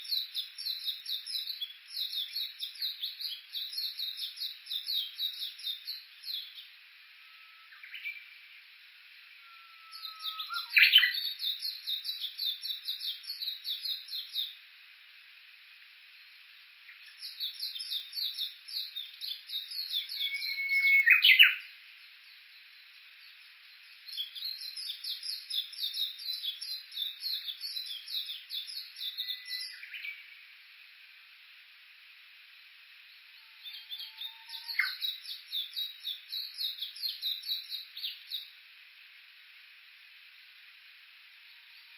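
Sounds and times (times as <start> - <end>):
bush warbler calling: 9.5 - 11.8, 19.6 - 21.6.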